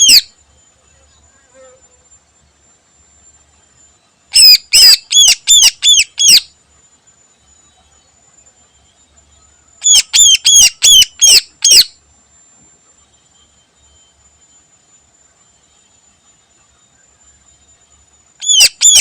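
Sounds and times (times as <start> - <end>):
bird calling sharp repeated notes: 4.3 - 6.5, 9.8 - 11.9, 18.4 - 19.0.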